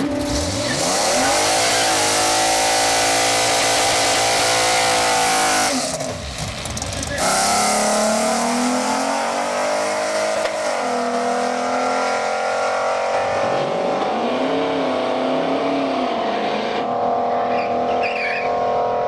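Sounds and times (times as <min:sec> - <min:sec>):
race car engine at high rpm: 0:00.0 - 0:19.0.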